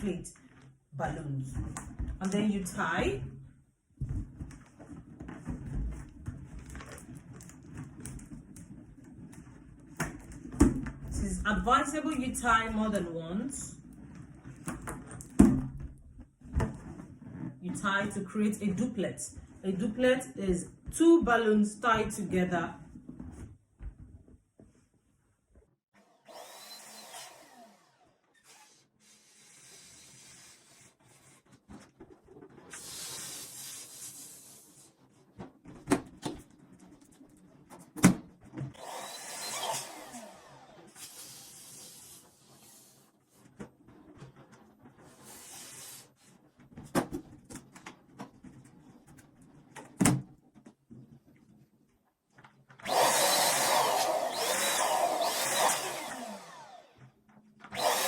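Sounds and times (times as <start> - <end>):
electric balloon inflator blowing: 26.0 - 31.2, 32.7 - 34.7, 38.8 - 43.1, 45.2 - 46.1, 52.8 - 57.0, 57.7 - 58.0.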